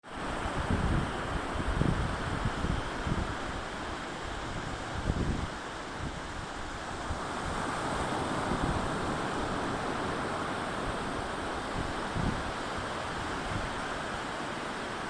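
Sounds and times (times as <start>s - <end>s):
surf breaking on a beach: 0.0s - 15.0s
wind buffeting the microphone: 0.2s - 15.0s.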